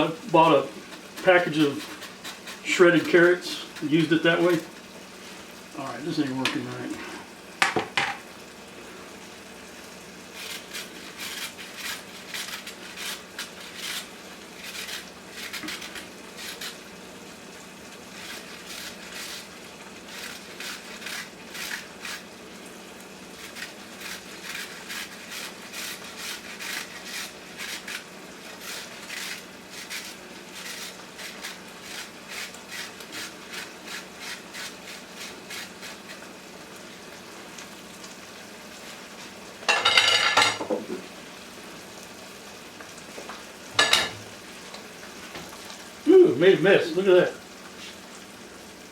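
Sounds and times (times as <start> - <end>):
carrot rasping on grater: 0.4 - 4.4, 10.3 - 16.8, 18.1 - 22.4, 23.3 - 36.3.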